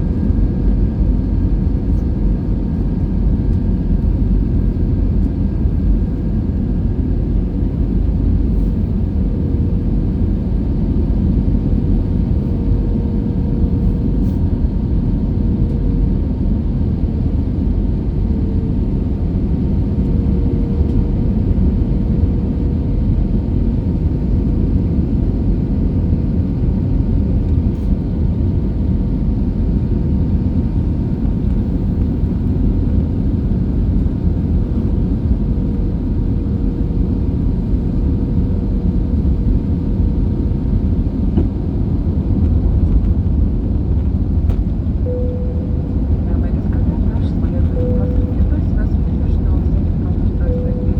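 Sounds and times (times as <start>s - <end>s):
jet engine rumble: 0.0s - 50.9s
faint steady hum: 42.4s - 50.9s.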